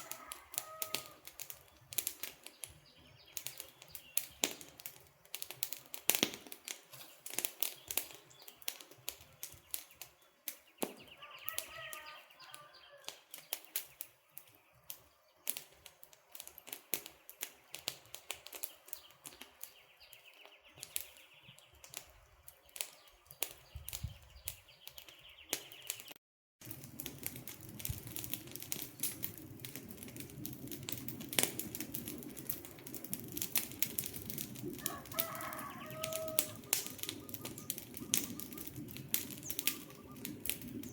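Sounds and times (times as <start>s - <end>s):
campfire crackling and popping: 0.0s - 40.9s
bird calling: 34.8s - 40.4s.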